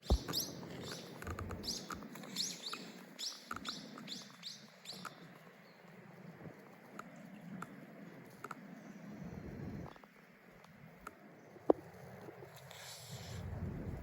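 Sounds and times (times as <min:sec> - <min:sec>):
bird chirping: 0:00.0 - 0:05.9.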